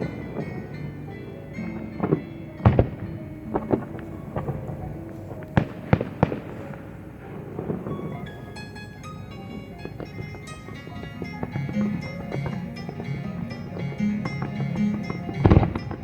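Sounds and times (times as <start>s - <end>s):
fireworks bangs: 0.0s - 16.0s
jazz music from loudspeakers: 0.0s - 16.0s.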